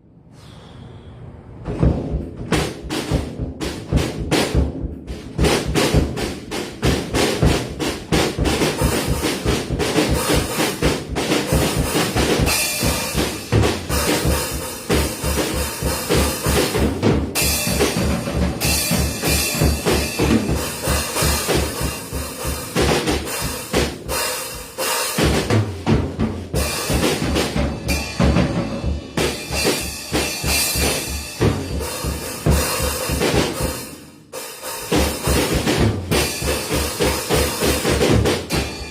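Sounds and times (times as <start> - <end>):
bass drum beat: 1.7 - 33.8, 34.9 - 38.9
cymbals crashing: 26.6 - 38.9
snare drum hits: 34.8 - 38.9.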